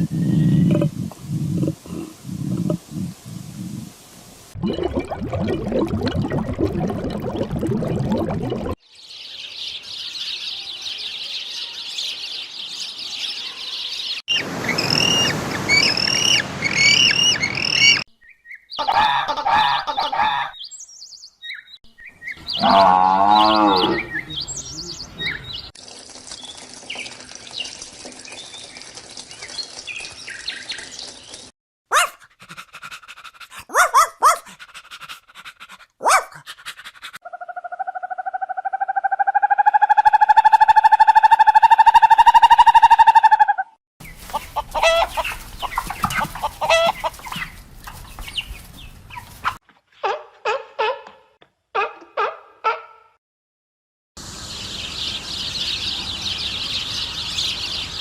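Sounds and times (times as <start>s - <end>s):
high bird chirping: 9.2s - 18.9s
sharp animal calls: 14.4s - 18.0s, 31.9s - 47.6s
short birdcalls: 14.6s - 20.7s.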